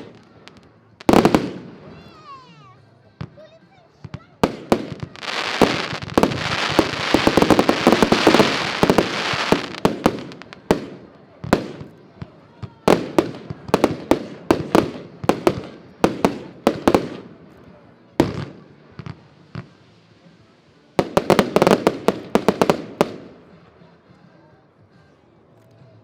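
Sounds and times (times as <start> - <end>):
fireworks bangs: 0.0 - 2.3, 4.0 - 17.5, 21.0 - 23.5
fireworks crackling: 0.0 - 23.6.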